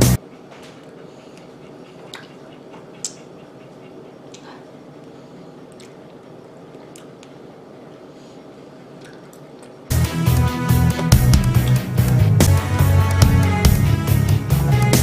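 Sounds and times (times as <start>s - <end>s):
steady low hum: 0.0s - 15.0s
wet mouth clicks and squishes: 1.4s - 3.3s, 5.7s - 7.4s.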